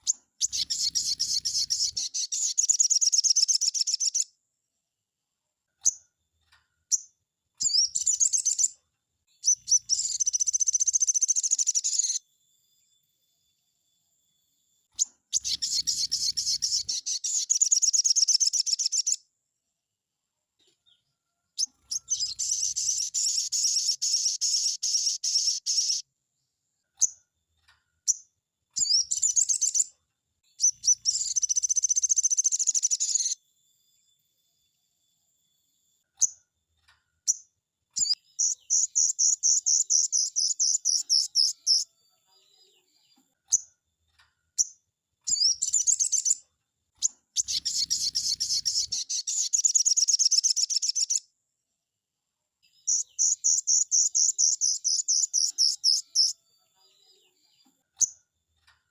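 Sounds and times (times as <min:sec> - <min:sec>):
bird singing high trilled song: 0:00.0 - 0:04.3, 0:06.9 - 0:08.8, 0:09.4 - 0:12.3, 0:15.0 - 0:19.2, 0:21.6 - 0:26.1, 0:28.1 - 0:33.4, 0:37.3 - 0:41.9, 0:44.6 - 0:46.4, 0:47.0 - 0:51.3, 0:52.8 - 0:56.4
short bird chirps: 0:00.0 - 0:04.3, 0:06.9 - 0:08.8, 0:09.4 - 0:12.3, 0:14.9 - 0:19.2, 0:21.6 - 0:26.1, 0:28.0 - 0:33.4, 0:37.3 - 0:41.9, 0:44.6 - 0:46.4, 0:47.0 - 0:51.2, 0:52.7 - 0:56.4.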